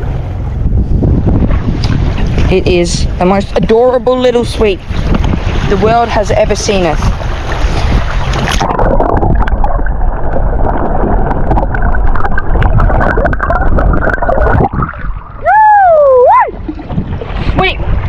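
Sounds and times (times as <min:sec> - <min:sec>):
wind buffeting the microphone: 0:00.0 - 0:18.0
water splashing around rocks: 0:04.6 - 0:15.6
sliding pitched tone: 0:08.3 - 0:17.0.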